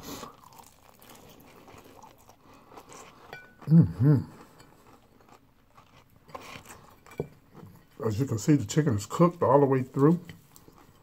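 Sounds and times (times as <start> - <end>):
chewing: 0.0 - 8.2, 9.0 - 11.0
person humming approval: 3.7 - 4.3.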